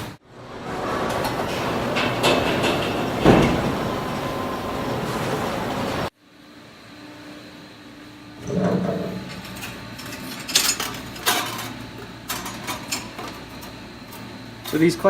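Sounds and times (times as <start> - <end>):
sharp metallic clanks and clicks: 1.2 - 3.7.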